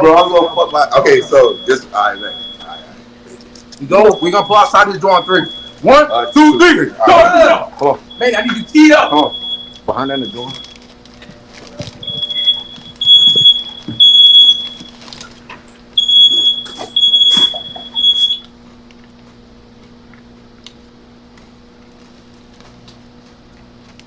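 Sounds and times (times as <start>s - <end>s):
smoke alarm beeping: 0.0s - 15.3s, 15.9s - 18.5s.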